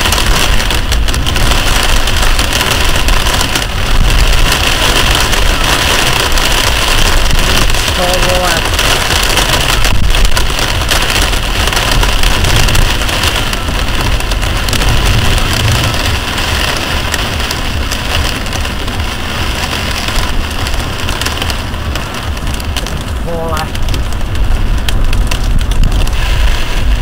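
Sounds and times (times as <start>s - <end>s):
heavy rain on a car: 0.0s - 27.0s
low rumble: 8.6s - 27.0s.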